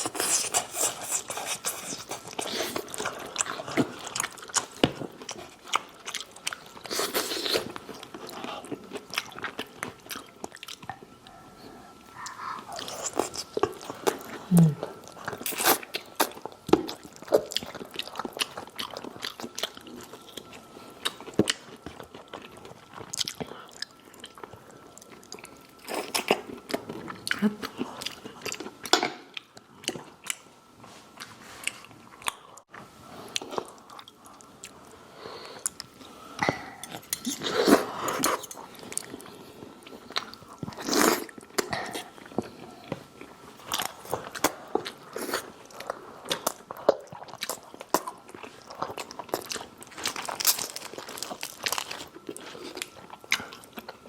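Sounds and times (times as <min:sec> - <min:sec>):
faint high hum: 0:00.0 - 0:54.0
crunchy chewing: 0:12.2 - 0:14.5, 0:36.8 - 0:54.0.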